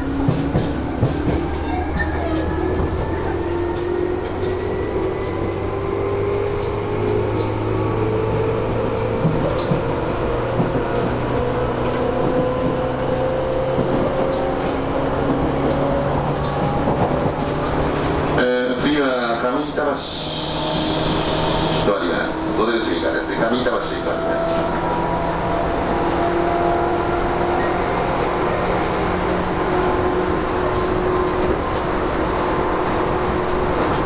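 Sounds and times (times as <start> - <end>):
low train rumble: 0.0 - 34.0
rail joint clicks: 0.0 - 34.0
train motor whine rising: 19.8 - 26.8.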